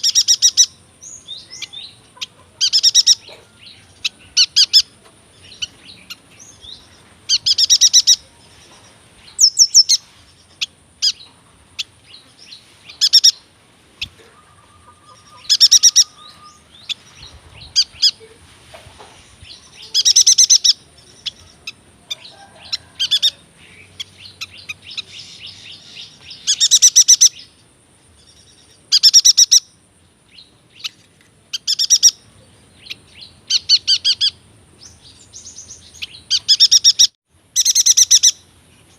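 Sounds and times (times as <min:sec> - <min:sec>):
bird chattering song: 0:00.0 - 0:18.4, 0:19.4 - 0:38.9
quiet bird chips: 0:00.0 - 0:38.9.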